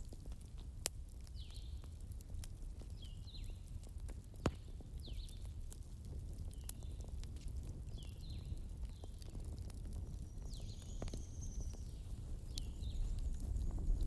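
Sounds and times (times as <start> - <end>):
low fire rumble: 0.0 - 14.0
wood fire crackling and popping: 0.0 - 14.0.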